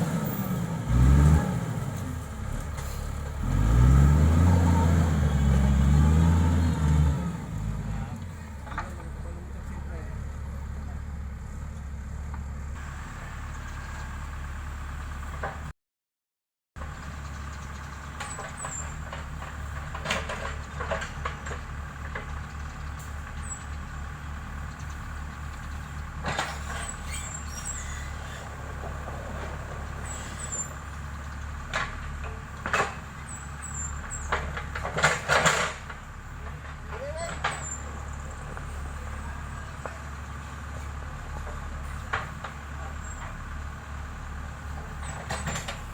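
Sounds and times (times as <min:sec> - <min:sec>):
diesel engine running: 0:00.0 - 0:15.7, 0:16.8 - 0:45.9
clanks rattles and squeaks: 0:17.2 - 0:39.0, 0:41.5 - 0:43.5, 0:44.7 - 0:45.9.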